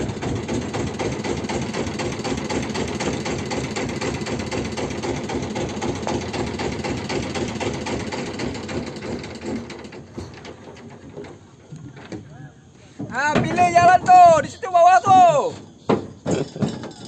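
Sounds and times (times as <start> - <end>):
motorboat engine knocking: 0.0 - 11.4.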